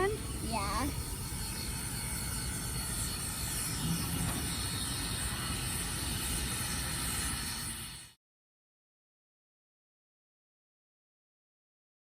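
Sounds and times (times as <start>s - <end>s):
steam locomotive hissing: 0.0s - 8.1s.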